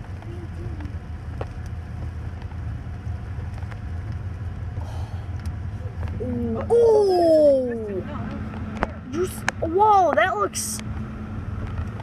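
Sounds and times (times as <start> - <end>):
taps of raindrops: 0.0 - 4.4
steady rain falling: 0.0 - 7.9.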